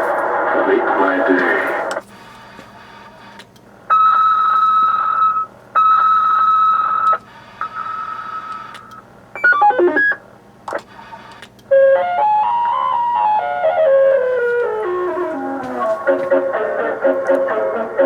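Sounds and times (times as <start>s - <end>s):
electronic beeps: 9.4s - 10.2s
tune of electronic notes: 9.4s - 10.2s, 11.8s - 18.0s.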